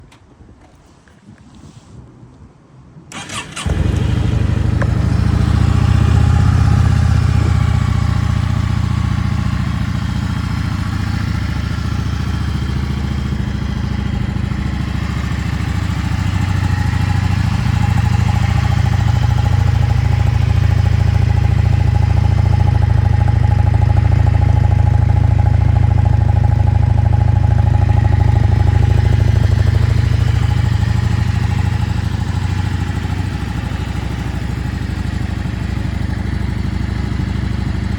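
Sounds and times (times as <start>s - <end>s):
motorcycle engine running: 3.2s - 37.9s.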